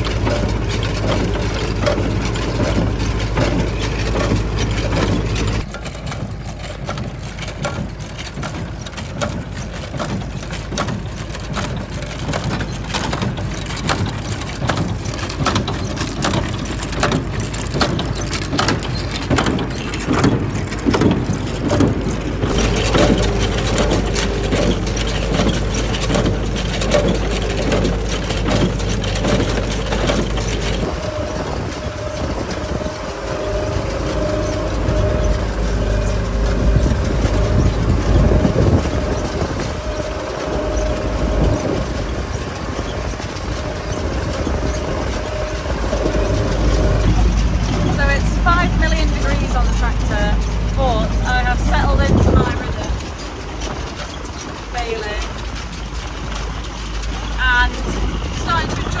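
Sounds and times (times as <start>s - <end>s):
tractor engine under load: 0.0s - 59.0s.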